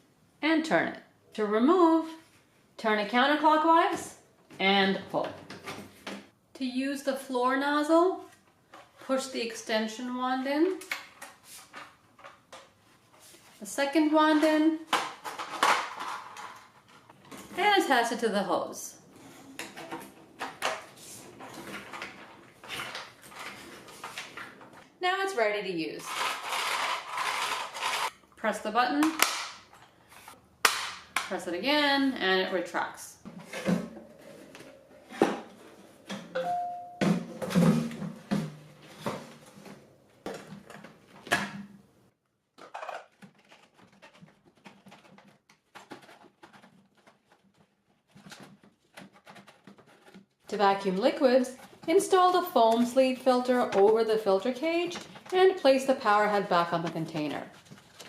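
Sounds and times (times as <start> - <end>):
plastic parts clicking and knocking: 14.9 - 17.4, 42.5 - 50.4
brief ringing tone: 36.4 - 37.1.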